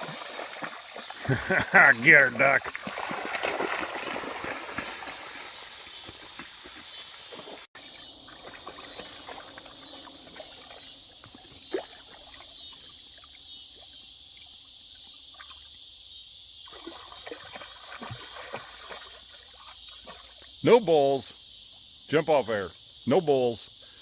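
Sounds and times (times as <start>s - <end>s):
water sloshing and splashing: 0.0s - 14.0s, 16.7s - 20.5s
crickets chirping: 0.0s - 24.0s.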